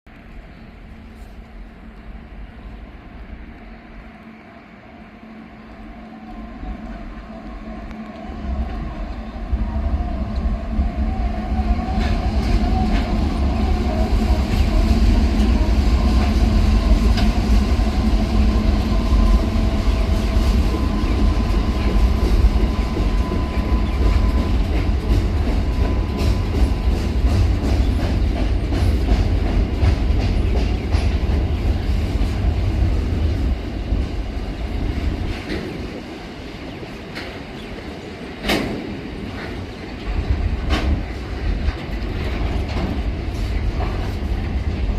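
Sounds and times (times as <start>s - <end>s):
diesel locomotive rumble: 5.0s - 44.9s.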